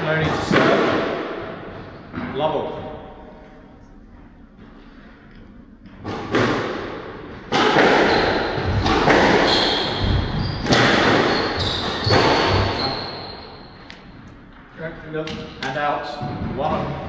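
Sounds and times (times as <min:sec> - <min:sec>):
squash ball hitting rackets and walls: 0:00.0 - 0:03.2, 0:05.3 - 0:17.0
shoes squeaking on court floor: 0:07.8 - 0:14.6.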